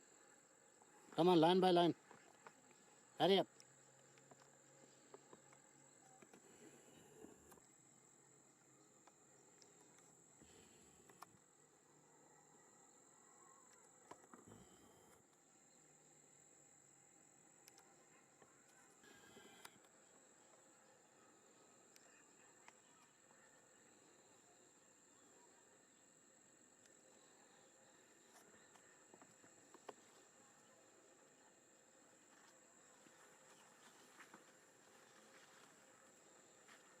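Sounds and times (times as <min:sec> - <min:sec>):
faint small clicks: 0:17.6 - 0:17.9, 0:18.7 - 0:20.0.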